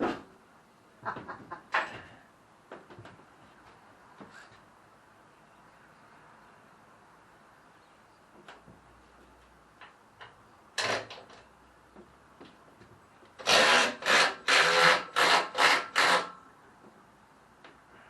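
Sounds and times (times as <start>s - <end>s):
hand tool rasping strokes: 13.4s - 16.3s.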